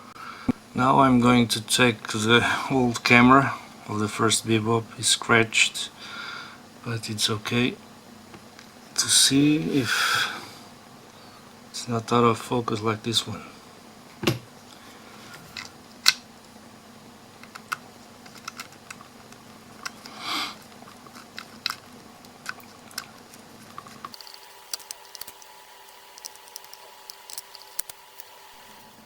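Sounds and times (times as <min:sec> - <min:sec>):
faint steady hum: 0:00.0 - 0:29.0
screwdriver and plastic clicks: 0:24.0 - 0:28.4.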